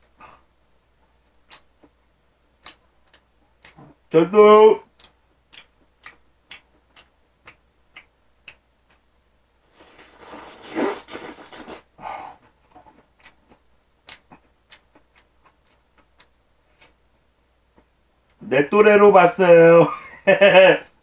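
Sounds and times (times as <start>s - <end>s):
person chewing: 1.2s - 2.0s, 2.6s - 4.0s, 4.9s - 9.0s, 9.7s - 11.8s, 12.4s - 17.0s.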